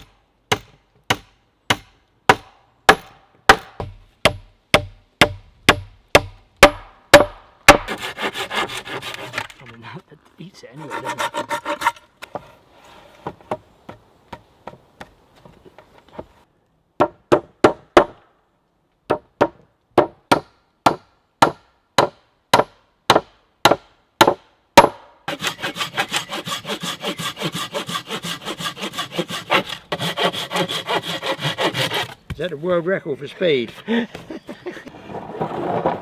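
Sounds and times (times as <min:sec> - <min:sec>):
hand saw cutting timber: 0:07.7 - 0:09.9, 0:10.7 - 0:13.4, 0:25.3 - 0:32.3, 0:33.3 - 0:34.6.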